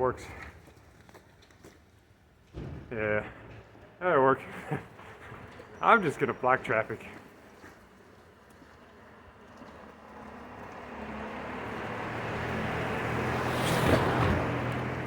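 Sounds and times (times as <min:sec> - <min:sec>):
vehicle driving past: 0:08.8 - 0:15.0.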